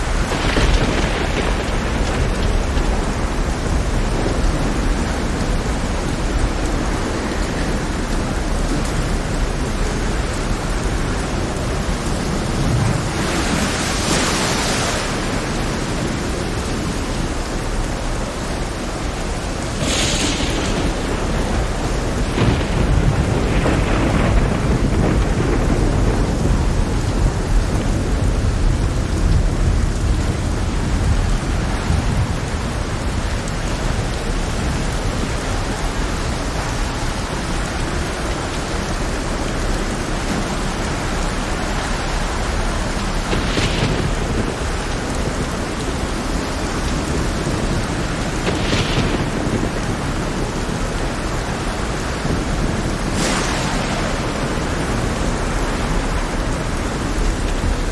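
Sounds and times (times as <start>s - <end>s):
sharp thunder crashes: 0.0s - 6.0s, 19.7s - 27.8s, 40.7s - 57.8s
heavy rain: 0.0s - 57.9s
rolling thunder: 0.0s - 57.9s.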